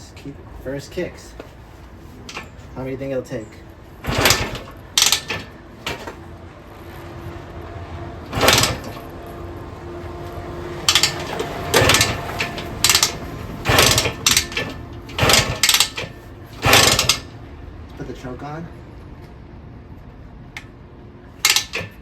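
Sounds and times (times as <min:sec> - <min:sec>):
kick-starter mechanical clunks: 0:02.2 - 0:02.8, 0:04.0 - 0:06.3, 0:08.3 - 0:09.2, 0:10.8 - 0:17.4, 0:21.4 - 0:22.0
engine turning over: 0:02.3 - 0:02.7, 0:04.0 - 0:06.3, 0:08.2 - 0:09.8, 0:10.5 - 0:17.4, 0:21.4 - 0:22.0.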